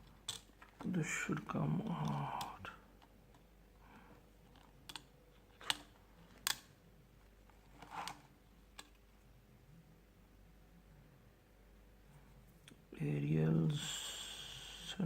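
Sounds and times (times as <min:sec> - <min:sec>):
tools clicking on plastic parts: 0:00.0 - 0:00.8, 0:04.5 - 0:06.7.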